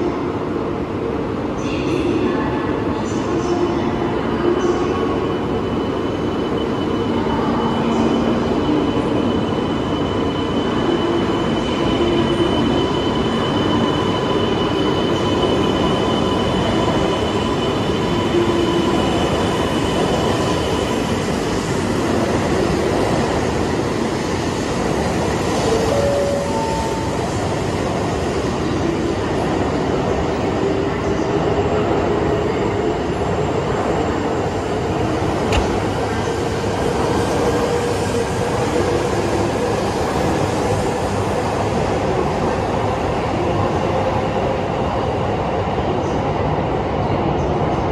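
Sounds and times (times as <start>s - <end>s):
train wheels and motors running: 34.5s - 42.6s.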